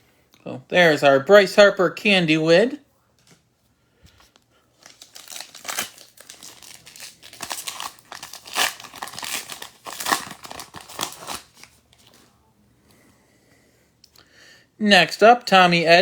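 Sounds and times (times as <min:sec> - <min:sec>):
foil wrapper crinkling and tearing: 0:04.8 - 0:12.2.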